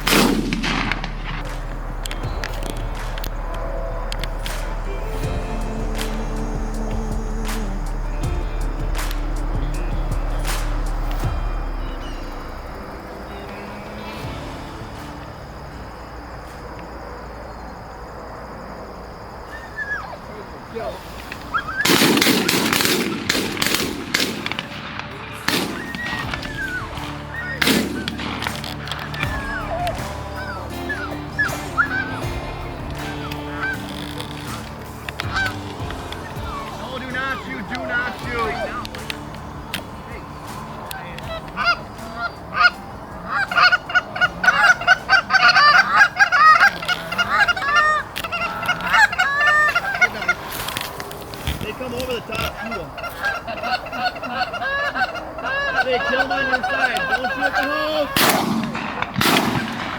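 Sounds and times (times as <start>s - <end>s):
shotgun blasts: 0.0s - 3.1s, 21.8s - 29.3s, 58.2s - 59.9s
background music: 0.0s - 19.4s, 20.3s - 59.9s
geese honking: 0.0s - 59.9s.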